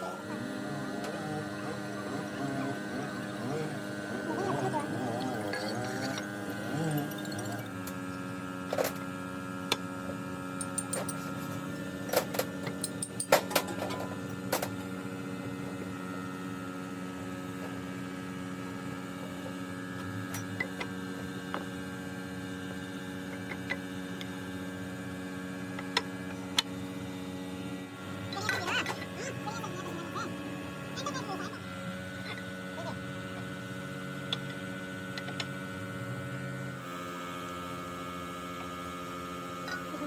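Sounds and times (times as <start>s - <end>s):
steady machine hum: 0.0s - 40.0s.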